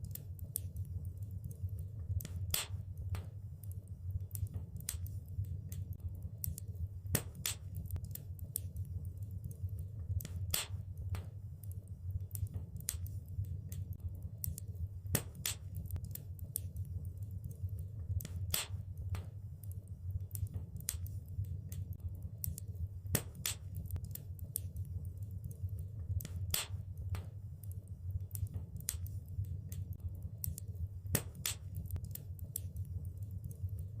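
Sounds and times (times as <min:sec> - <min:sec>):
sharp pops and snaps: 0:00.0 - 0:34.0
wood fire crackling: 0:00.0 - 0:34.0.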